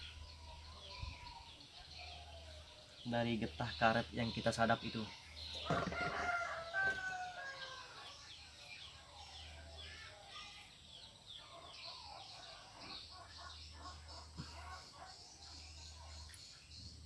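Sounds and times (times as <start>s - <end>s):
rooster crowing: 5.6s - 8.0s.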